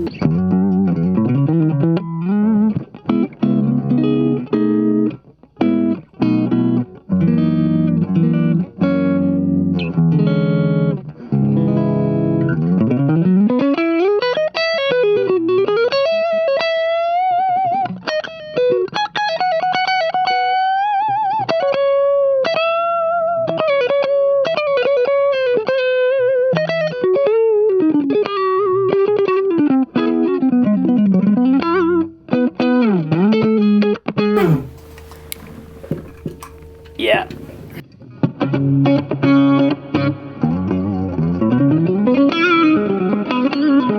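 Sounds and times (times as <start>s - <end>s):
electric guitar chords: 0.0s - 0.2s, 34.4s - 37.8s
electric guitar lead line: 34.4s - 37.8s.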